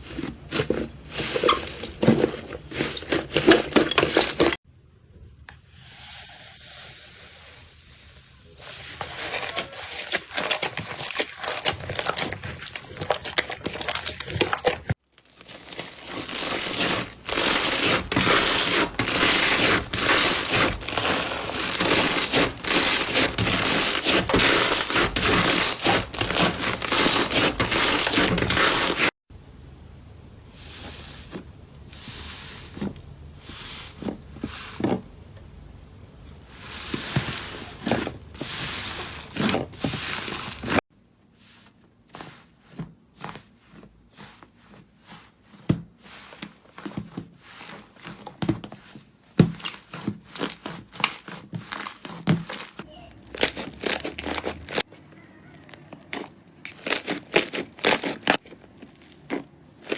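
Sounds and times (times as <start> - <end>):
slime crackling and crinkling: 8.6 - 29.2, 36.5 - 40.8, 42.2 - 59.9.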